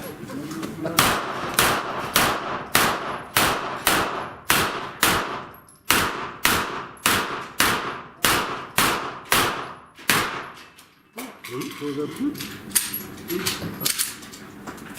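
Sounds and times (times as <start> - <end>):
gunshots with echo: 1.0 - 10.6.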